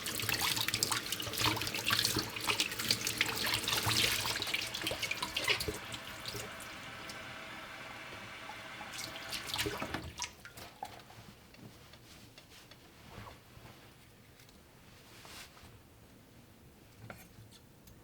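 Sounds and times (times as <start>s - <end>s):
tap water running into sink: 0.0s - 10.4s.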